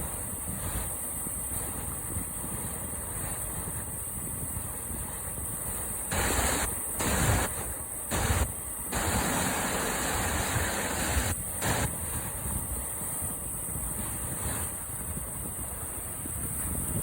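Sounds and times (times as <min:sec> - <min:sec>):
splashing water surges: 0:05.7 - 0:17.0
rushing whitewater: 0:06.0 - 0:12.3.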